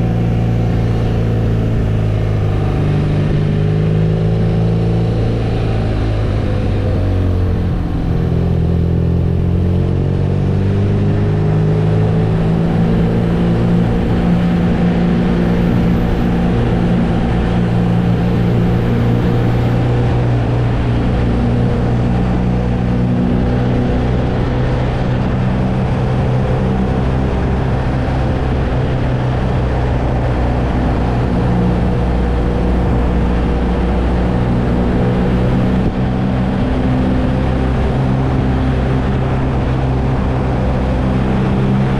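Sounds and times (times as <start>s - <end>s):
motorcycle engine cruising: 0.0s - 41.9s
road noise: 0.0s - 41.9s
wind noise: 0.0s - 41.9s.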